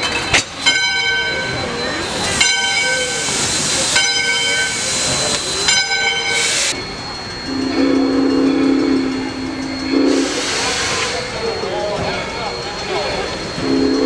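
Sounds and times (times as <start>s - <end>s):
steady lower-pitched tone: 0.7s - 14.0s
steam hissing: 1.6s - 14.0s
steam locomotive whistle: 7.5s - 11.7s, 13.5s - 14.0s.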